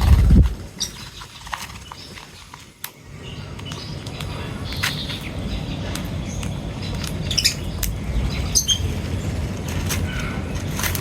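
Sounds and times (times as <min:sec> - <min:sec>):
low rumble: 0:00.0 - 0:00.7
birds chirping and squawking: 0:00.0 - 0:11.0.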